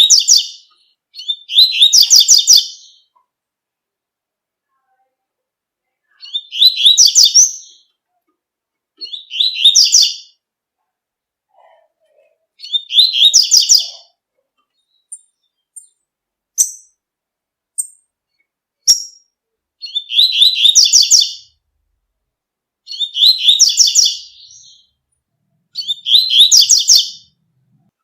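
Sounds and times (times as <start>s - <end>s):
bird singing rapid high notes: 0.0s - 3.1s, 6.2s - 7.9s, 12.6s - 14.0s, 22.9s - 25.0s, 25.8s - 27.4s.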